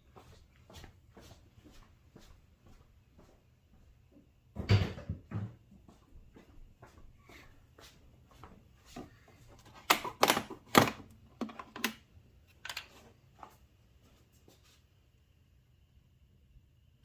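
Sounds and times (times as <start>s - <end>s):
objects being handled: 9.0s - 13.7s.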